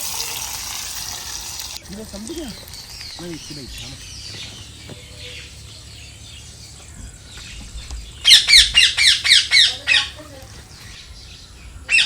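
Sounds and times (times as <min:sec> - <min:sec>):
bird calling sharp notes: 0:08.1 - 0:10.2.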